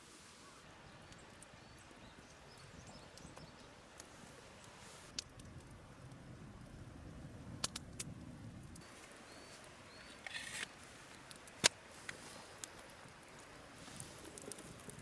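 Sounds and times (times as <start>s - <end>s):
wood fire crackling: 0.7s - 15.0s
sharp pops from fire: 4.0s - 6.2s, 7.5s - 8.9s, 10.0s - 12.8s.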